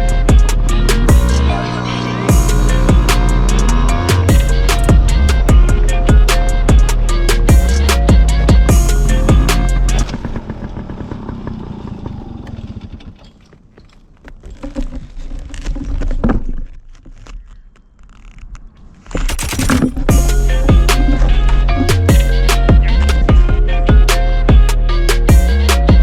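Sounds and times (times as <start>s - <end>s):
motorcycle engine puttering: 0.1s - 18.4s
knocks and clatter: 19.0s - 20.2s.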